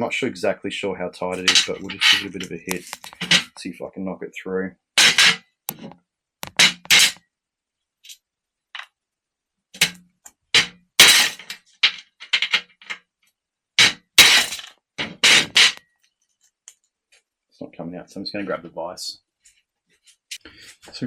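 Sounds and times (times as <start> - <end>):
hammer striking metal: 5.0 - 5.4, 13.8 - 14.6.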